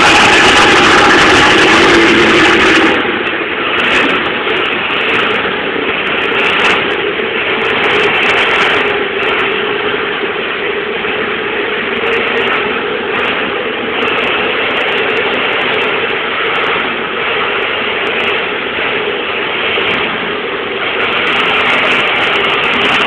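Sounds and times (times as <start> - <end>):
racing engine idling: 0.0 - 23.0.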